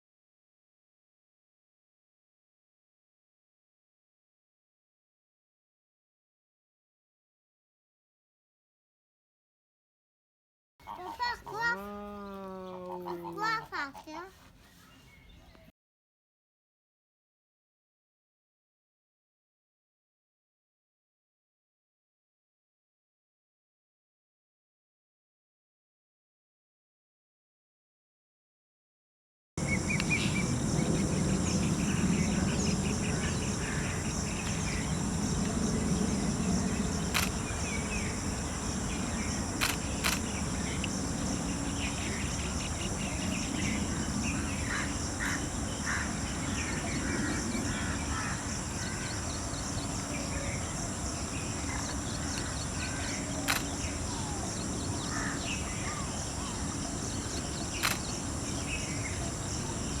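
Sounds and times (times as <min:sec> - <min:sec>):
bird calls and chirps: 0:10.8 - 0:15.7, 0:29.6 - 1:00.0
high insect drone: 0:29.6 - 1:00.0
sharp clicks: 0:37.1 - 0:37.5, 0:39.6 - 0:40.9, 0:53.5 - 0:53.8, 0:57.8 - 0:58.2.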